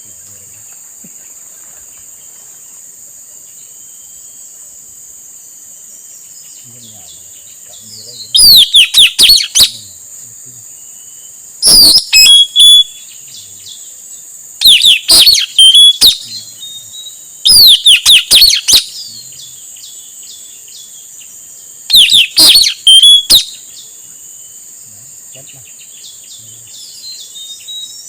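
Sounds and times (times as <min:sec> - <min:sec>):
insect drone: 0:00.0 - 0:28.0
parrot calling: 0:08.3 - 0:09.8, 0:11.6 - 0:13.0, 0:14.6 - 0:19.1, 0:21.9 - 0:23.6.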